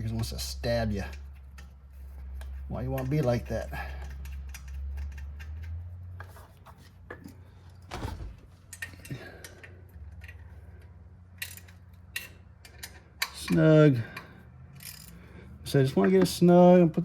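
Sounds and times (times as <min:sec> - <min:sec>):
wrench clinking against metal: 0:11.3 - 0:15.3.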